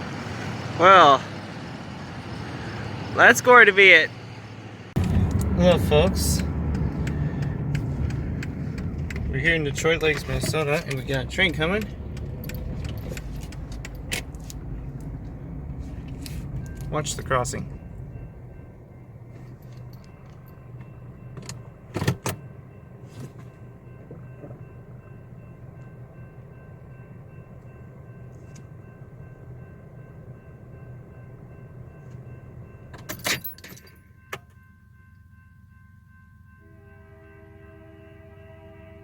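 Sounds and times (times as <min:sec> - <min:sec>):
low engine rumble: 0:00.0 - 0:34.3
faint steady tones: 0:00.0 - 0:39.0
sharp clicks and rattles: 0:05.0 - 0:18.6.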